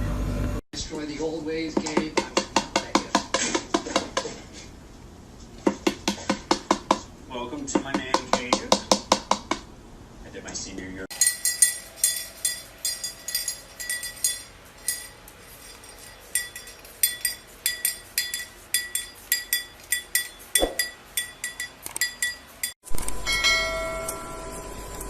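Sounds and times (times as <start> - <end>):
clinking taps on glass or metal: 11.1 - 22.8.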